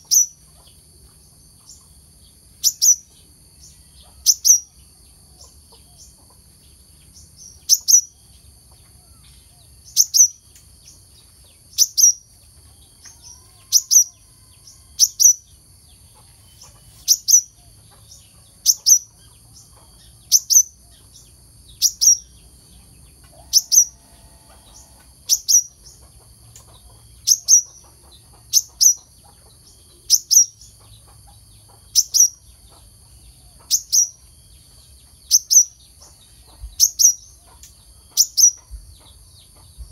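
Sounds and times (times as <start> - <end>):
bird high sharp chirps: 2.6 - 3.1, 7.5 - 8.2, 9.9 - 10.5, 13.1 - 14.2, 17.0 - 17.6, 23.5 - 24.0, 24.7 - 25.9.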